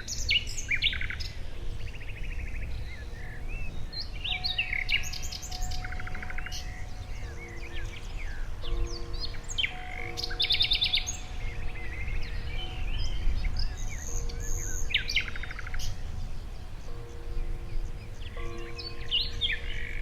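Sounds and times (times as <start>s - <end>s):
birds chirping and singing: 0.0s - 20.0s.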